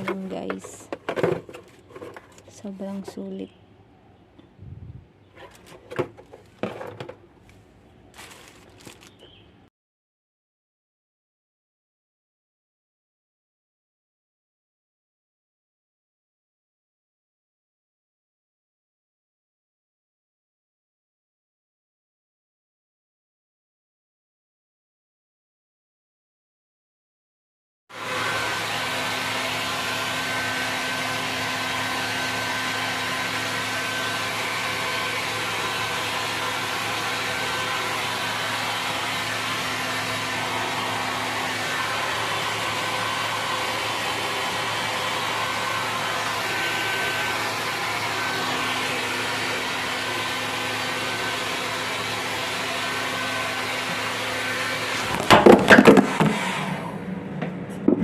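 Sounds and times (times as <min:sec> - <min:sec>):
hair dryer running: 0:00.0 - 0:01.4, 0:27.9 - 0:57.6
knocks and rattles of handling: 0:00.0 - 0:03.3, 0:05.4 - 0:07.3.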